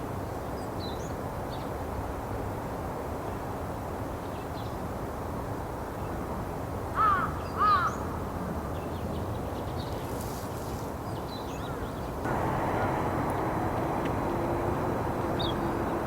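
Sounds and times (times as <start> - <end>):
low outdoor rumble: 12.3 - 16.0.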